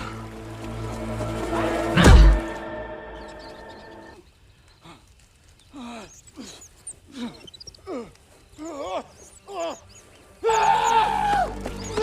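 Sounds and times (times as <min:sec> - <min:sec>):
sustained musical chord: 0:00.2 - 0:04.1.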